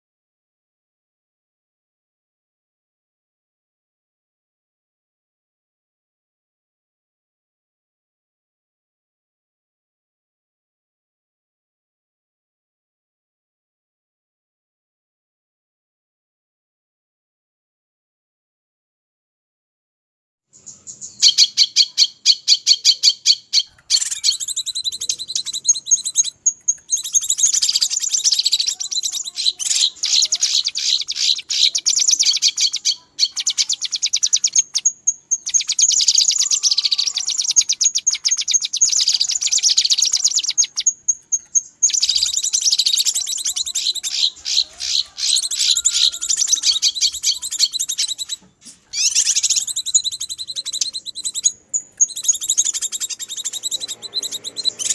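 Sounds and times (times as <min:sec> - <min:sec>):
birds chattering and twittering: 0:20.5 - 0:54.9.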